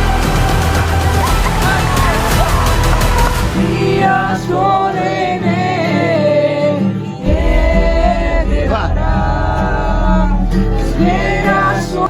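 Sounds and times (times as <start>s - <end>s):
background music: 0.0s - 12.0s
person singing: 0.0s - 12.0s
heavy bass line: 7.2s - 12.0s.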